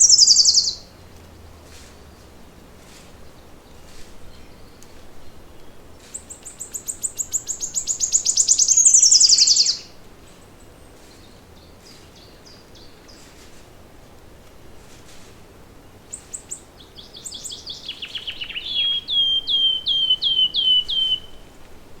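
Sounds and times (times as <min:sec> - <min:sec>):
songbird trilling: 0:00.0 - 0:00.8, 0:06.1 - 0:10.0, 0:16.1 - 0:21.5.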